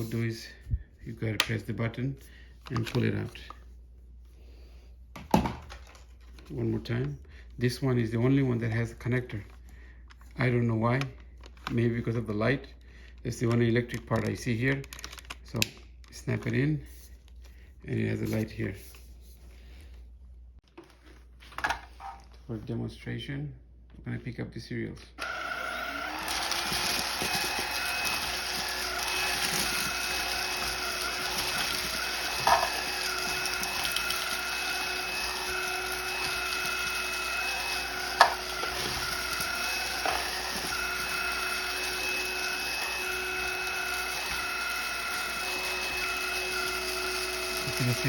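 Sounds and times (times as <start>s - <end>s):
vacuum cleaner whining: 25.2s - 48.0s.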